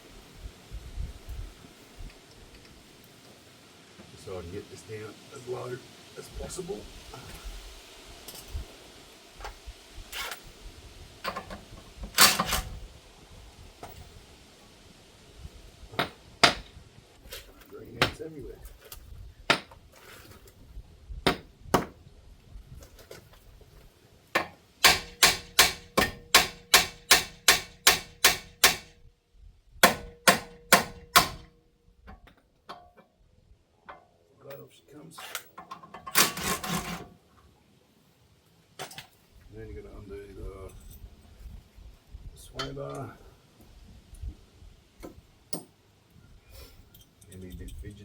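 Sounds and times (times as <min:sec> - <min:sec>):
hammer striking metal: 0:24.4 - 0:28.9, 0:29.8 - 0:31.5.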